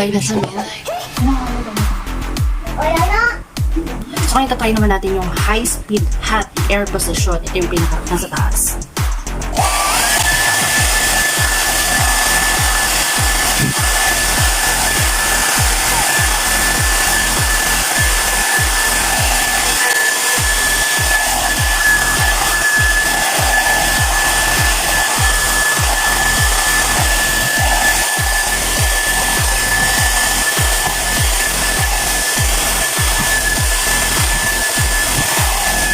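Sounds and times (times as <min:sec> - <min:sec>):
hair dryer blowing: 0:09.4 - 0:35.9.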